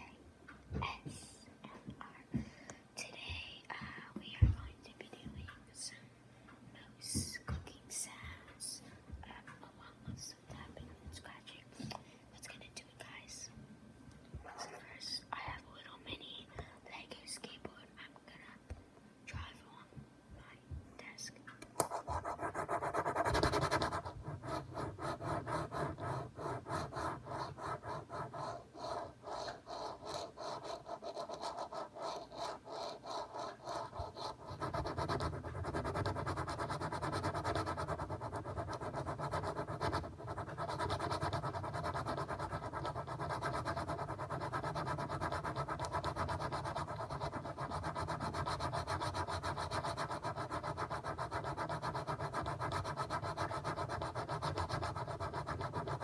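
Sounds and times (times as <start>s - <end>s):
scratching and rubbing on a surface: 21.8s - 56.0s.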